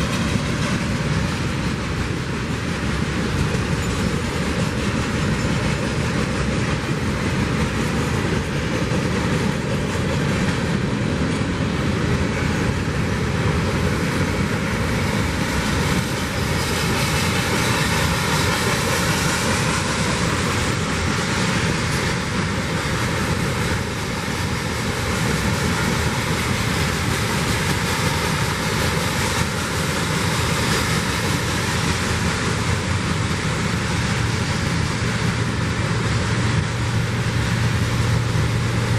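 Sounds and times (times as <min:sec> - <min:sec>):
train wheels on track: 0:00.0 - 0:38.9.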